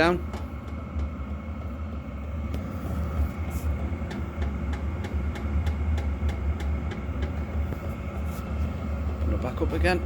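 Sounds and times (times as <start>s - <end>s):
steady low hum: 0.0s - 10.0s
fuel pump ticking: 3.8s - 7.9s.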